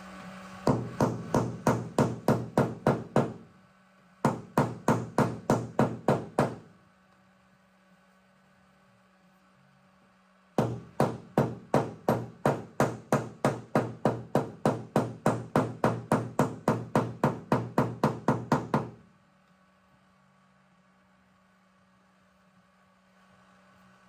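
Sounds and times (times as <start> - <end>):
hammer tapping on metal panel: 0.7 - 3.4, 4.3 - 6.7, 10.6 - 19.0.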